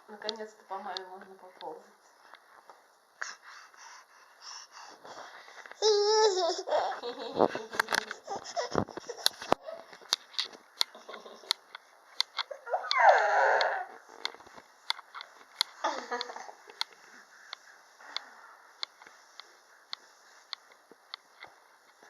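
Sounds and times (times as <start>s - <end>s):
baby babbling and laughing: 5.8s - 7.0s
baby squealing: 12.5s - 14.0s.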